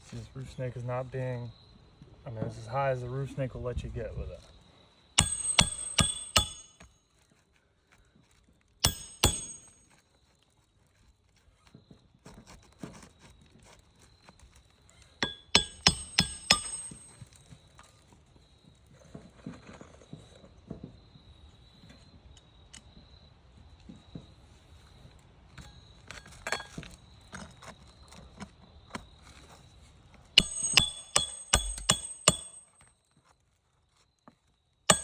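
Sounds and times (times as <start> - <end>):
hammer striking metal: 5.2 - 6.9, 8.8 - 9.8, 15.2 - 17.2, 30.4 - 32.8.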